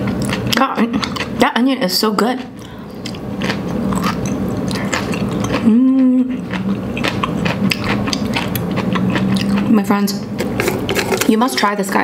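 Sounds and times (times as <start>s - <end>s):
person chewing noodles: 0.0s - 1.4s, 2.4s - 9.8s
person humming: 5.6s - 6.4s.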